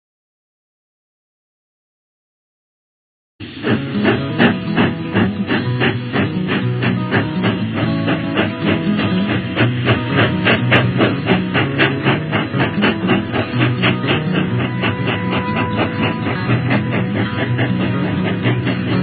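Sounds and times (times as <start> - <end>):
guitar playing steady rhythm: 3.4 - 19.0.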